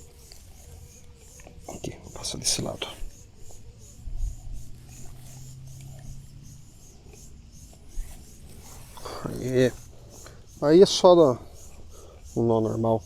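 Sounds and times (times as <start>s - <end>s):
faint handling sounds: 7.7s - 10.4s.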